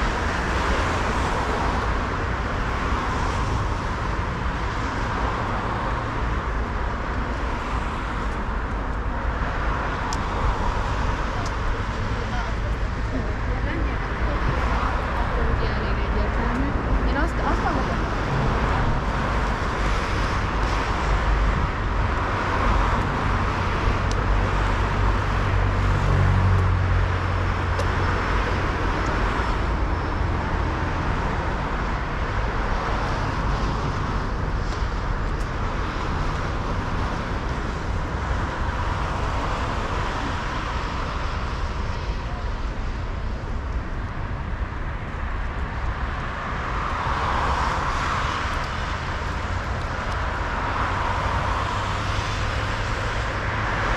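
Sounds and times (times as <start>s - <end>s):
city street traffic: 0.0s - 53.9s
low rumble: 8.2s - 32.5s.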